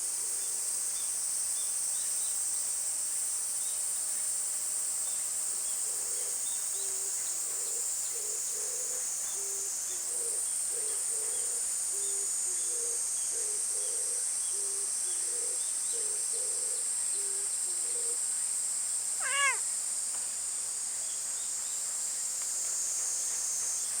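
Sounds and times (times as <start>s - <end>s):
cicadas chirring: 0.2s - 24.0s
cat meowing: 19.2s - 19.6s.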